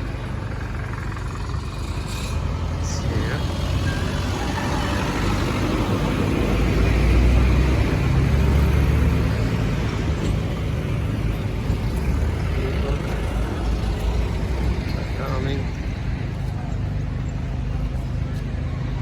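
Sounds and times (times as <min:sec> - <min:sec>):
city street traffic: 0:00.0 - 0:19.0
vehicle passing close by: 0:01.8 - 0:16.2.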